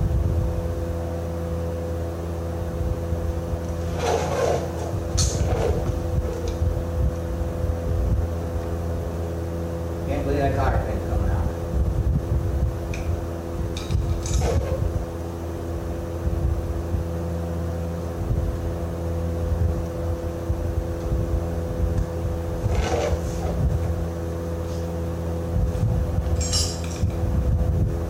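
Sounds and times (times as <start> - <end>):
metallic scrapes: 3.8 - 6.5.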